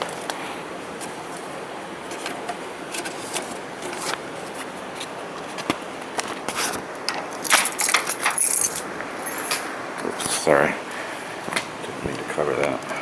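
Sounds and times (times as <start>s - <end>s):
paper envelopes rustling: 0.0s - 7.8s
steady background noise: 0.0s - 13.0s.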